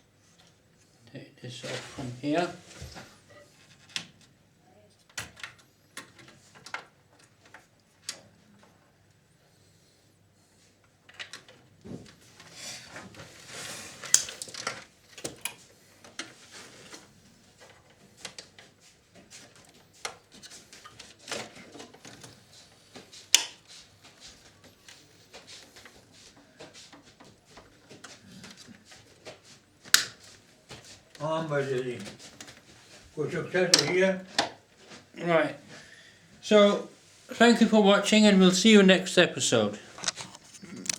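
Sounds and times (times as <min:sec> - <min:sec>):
rustling and clatter: 0:10.8 - 0:31.2, 0:39.8 - 0:40.9
plastic parts clicking and scraping: 0:39.9 - 0:40.9.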